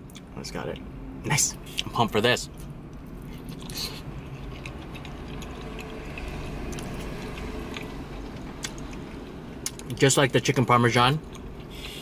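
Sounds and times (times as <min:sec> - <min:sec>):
low steady hum: 0:00.0 - 0:12.0
man chewing: 0:01.6 - 0:10.0, 0:11.2 - 0:12.0
wet mouth sounds and clicks: 0:08.6 - 0:10.0.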